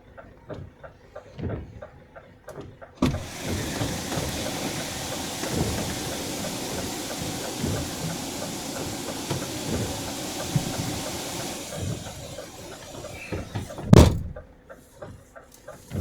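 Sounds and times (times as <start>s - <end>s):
car door shutting: 3.0s - 14.4s.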